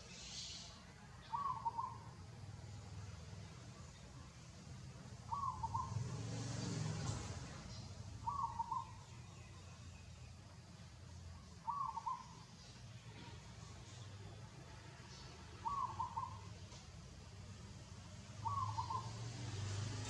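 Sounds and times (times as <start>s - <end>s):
bird calling: 0.0s - 2.2s, 5.3s - 6.1s, 7.7s - 9.7s, 11.4s - 13.3s, 15.1s - 16.8s, 18.4s - 19.4s.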